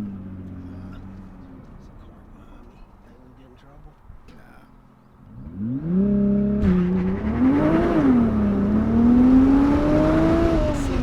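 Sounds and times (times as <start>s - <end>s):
car engine accelerating: 5.2s - 11.0s.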